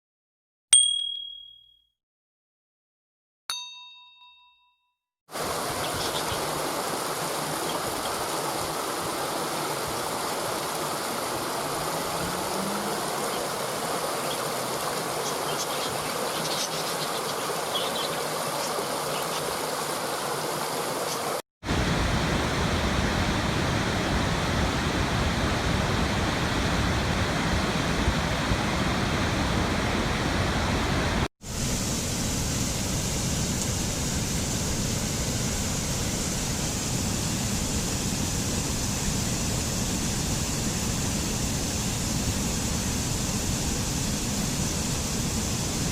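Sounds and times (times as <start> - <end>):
waterfall roaring: 5.3 - 45.9.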